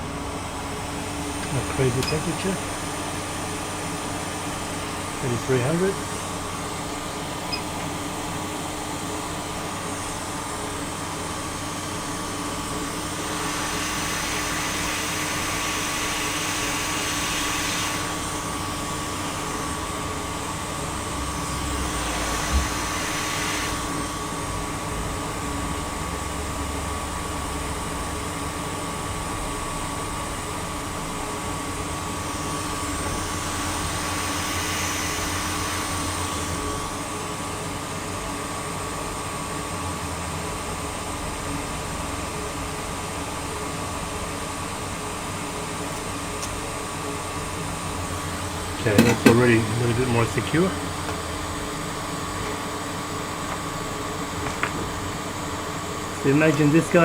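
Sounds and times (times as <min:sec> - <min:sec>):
hot-air gun blowing: 0:00.0 - 0:25.4, 0:31.8 - 0:37.2, 0:45.6 - 0:57.0.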